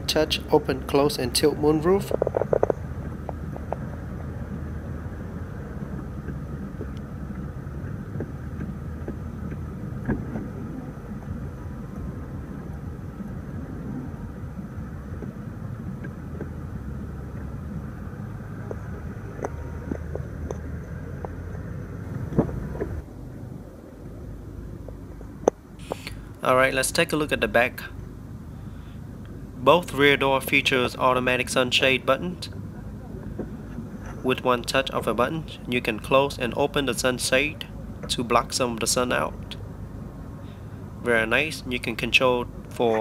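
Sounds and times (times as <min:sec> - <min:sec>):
car cabin rumble and hum: 0:00.0 - 0:28.5, 0:29.3 - 0:43.0.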